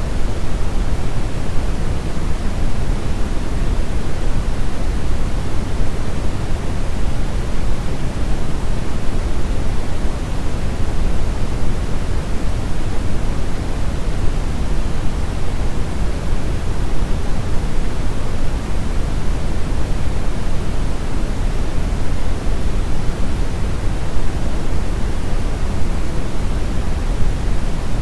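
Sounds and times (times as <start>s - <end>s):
brown noise rumbling hiss: 0.0s - 28.0s.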